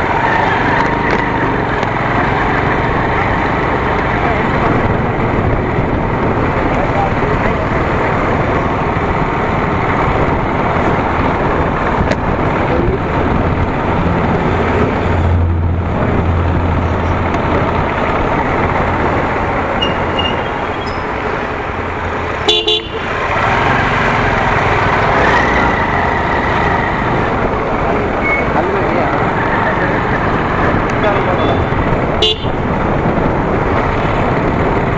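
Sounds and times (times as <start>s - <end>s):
wind and road noise: 0.0s - 34.9s
vehicle horn toot: 19.8s - 21.0s, 22.4s - 23.2s, 31.4s - 32.6s.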